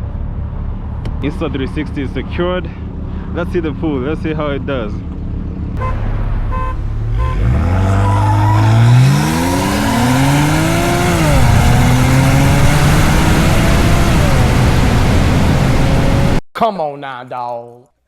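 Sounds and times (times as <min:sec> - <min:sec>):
car engine accelerating: 0:00.0 - 0:16.4.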